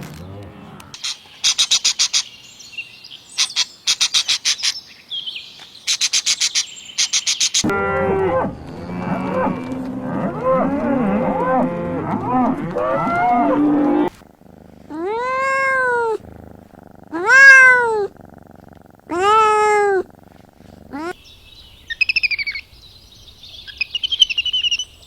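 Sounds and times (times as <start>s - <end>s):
cats meowing: 12.2s - 21.2s.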